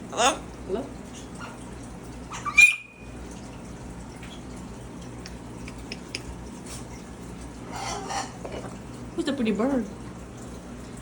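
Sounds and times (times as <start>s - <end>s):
macaw squawk: 2.3s - 3.0s.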